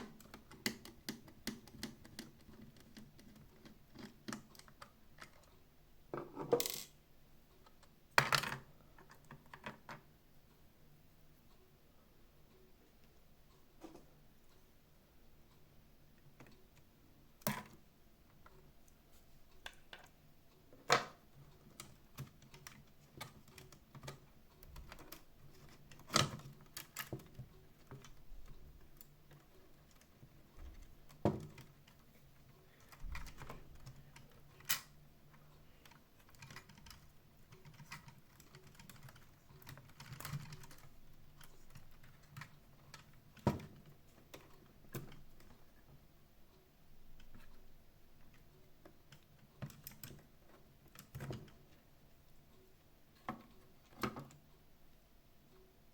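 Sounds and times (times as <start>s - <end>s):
small plastic and metal parts clicking: 35.8s - 45.6s.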